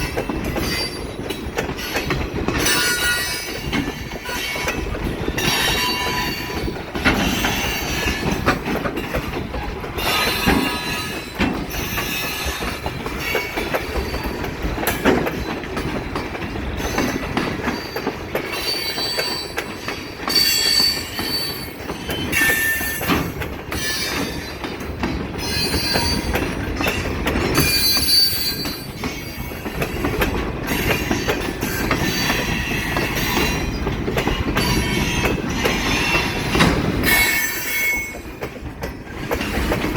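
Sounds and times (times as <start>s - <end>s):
railcars rumbling past: 0.0s - 39.9s
wheels clacking over rail joints: 0.0s - 39.9s
high-pitched wheel squeals: 27.6s - 28.9s.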